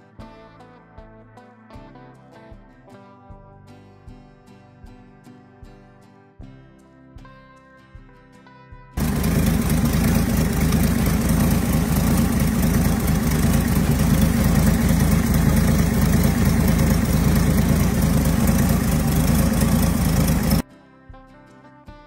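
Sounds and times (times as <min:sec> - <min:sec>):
car engine idling: 0:09.0 - 0:20.6.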